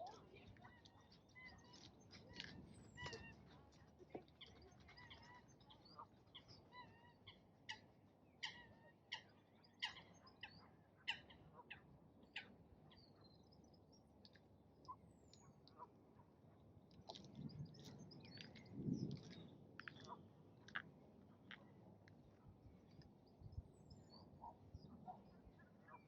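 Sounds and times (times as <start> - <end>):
birds chirping: 0.0 - 15.8, 17.2 - 20.8.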